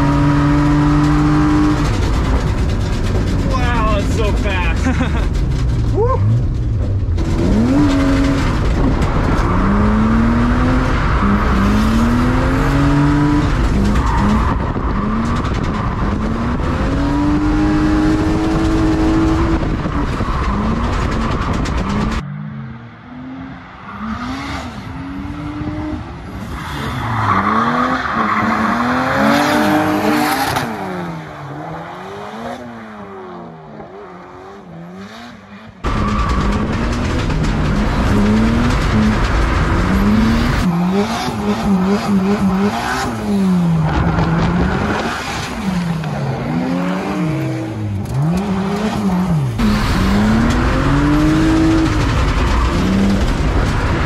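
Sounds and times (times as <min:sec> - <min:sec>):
wind noise: 0:00.0 - 0:22.2, 0:35.8 - 0:54.0
car engine revving: 0:00.0 - 0:54.0.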